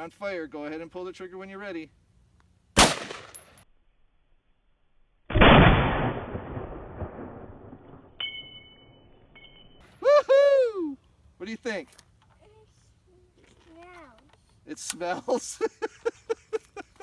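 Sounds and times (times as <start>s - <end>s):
gunshots: 2.8s - 3.5s, 5.3s - 8.1s.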